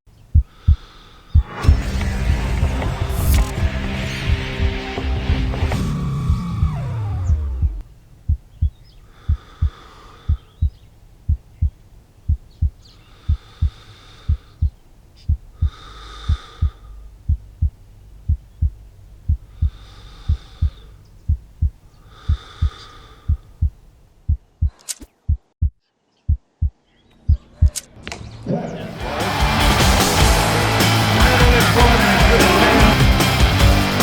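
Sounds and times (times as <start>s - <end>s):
heartbeat thumps: 0.3s - 27.8s
heavy breathing: 0.4s - 2.0s, 9.0s - 10.8s, 12.8s - 18.6s, 19.2s - 23.9s.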